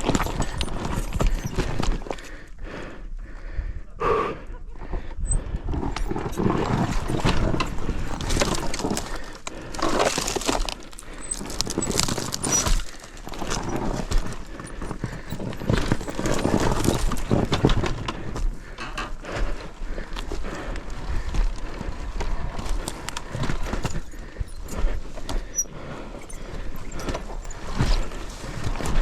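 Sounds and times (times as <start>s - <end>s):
loose rocks clattering: 0.0s - 2.2s, 5.8s - 20.5s, 21.2s - 29.0s.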